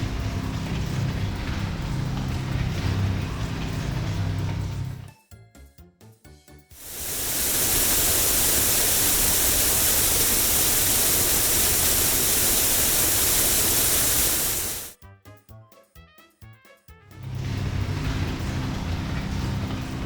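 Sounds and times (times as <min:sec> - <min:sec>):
hissing water spray: 0:06.8 - 0:15.0.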